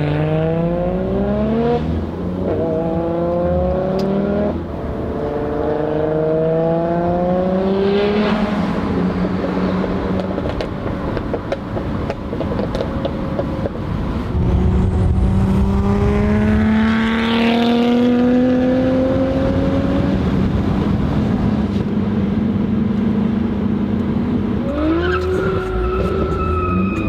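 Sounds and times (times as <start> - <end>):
turbocharged car engine under load: 0.0 - 27.0
shifting higher engine note: 14.2 - 19.2.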